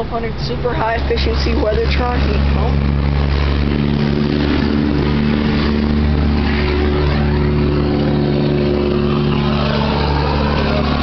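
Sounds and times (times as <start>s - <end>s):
condenser fan rushing: 0.0s - 11.0s.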